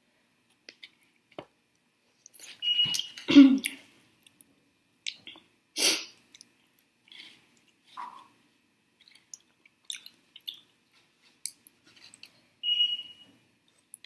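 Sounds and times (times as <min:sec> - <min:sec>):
person chewing food: 0:09.0 - 0:12.4.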